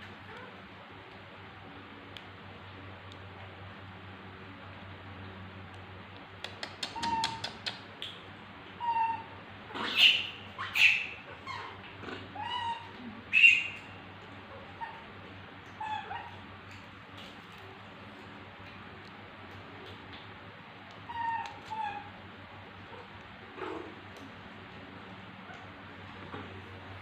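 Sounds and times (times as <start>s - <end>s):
baby monkey squeaking: 6.7s - 7.7s, 9.8s - 11.8s, 12.4s - 13.8s.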